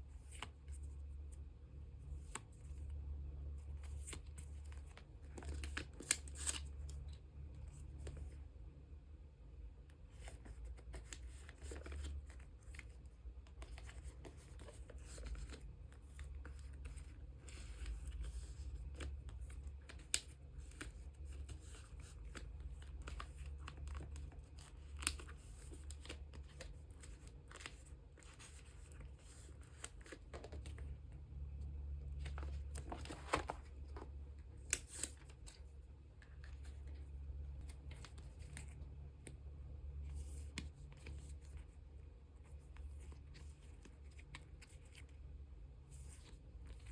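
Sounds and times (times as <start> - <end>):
plastic sleeves rustling: 10.0 - 31.0, 31.8 - 39.3.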